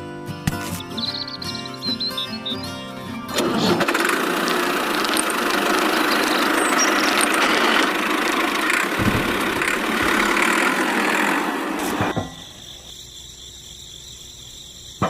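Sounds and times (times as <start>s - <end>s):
small motor whirring and rattling: 3.4s - 12.2s.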